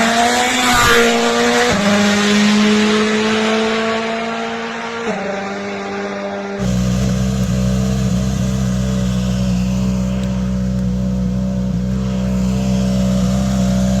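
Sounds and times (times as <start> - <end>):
car engine running steadily: 6.5 - 14.0.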